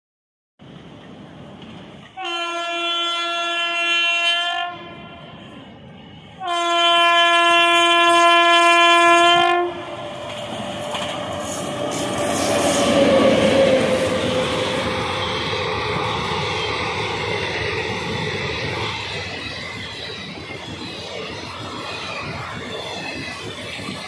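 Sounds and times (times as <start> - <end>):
locomotive horn chord: 2.2 - 5.0, 6.4 - 9.9
train wheels clattering over rails: 9.7 - 24.0.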